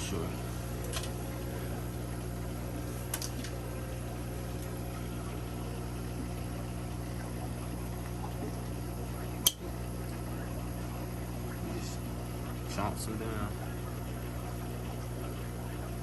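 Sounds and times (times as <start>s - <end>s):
aquarium pump humming: 0.0s - 16.0s
water bubbling: 3.6s - 16.0s.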